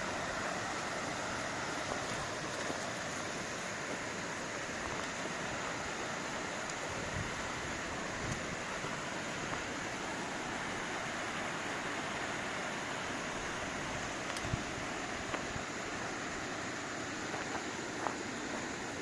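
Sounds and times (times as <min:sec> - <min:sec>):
mountain stream rushing: 0:00.0 - 0:19.0
faint clicks: 0:14.2 - 0:14.6.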